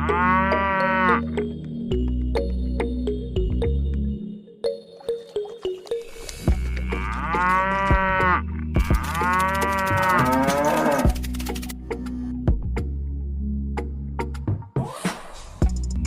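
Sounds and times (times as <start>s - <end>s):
cow mooing: 0.0s - 1.4s, 6.6s - 11.2s.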